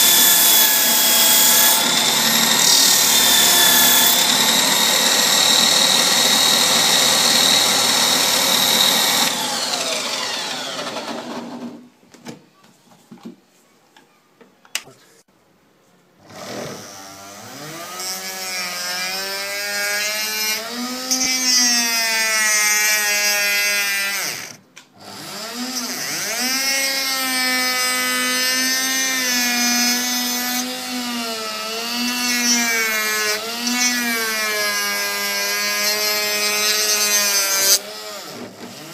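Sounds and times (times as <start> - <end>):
small electric motor whining: 0.0 - 11.2.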